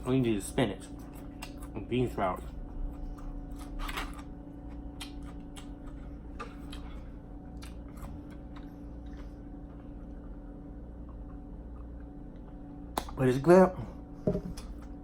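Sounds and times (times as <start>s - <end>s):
faint steady hum: 0.0s - 15.0s
person chewing food: 0.9s - 1.8s, 2.6s - 12.7s.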